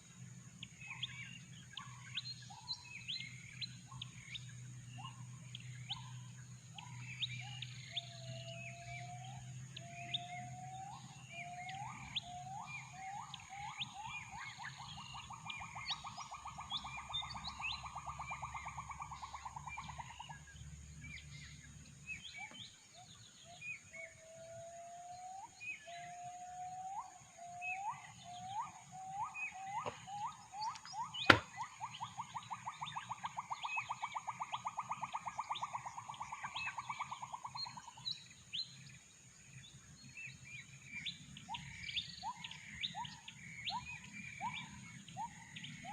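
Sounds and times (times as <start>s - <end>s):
small birds chirping: 0.0s - 24.2s, 25.4s - 45.9s
gibbon whooping call: 26.3s - 37.3s.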